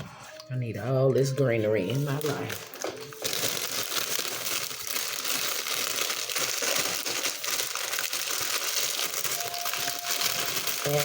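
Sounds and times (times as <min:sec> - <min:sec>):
salad greens crinkling: 0:01.8 - 0:11.0.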